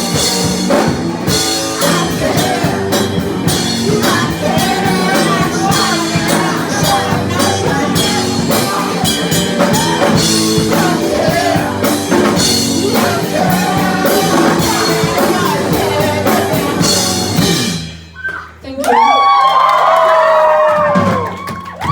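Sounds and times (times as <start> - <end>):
live rock band playing: 0.0 - 18.2
drum kit: 0.0 - 18.3, 20.7 - 21.9
person singing: 1.3 - 17.7.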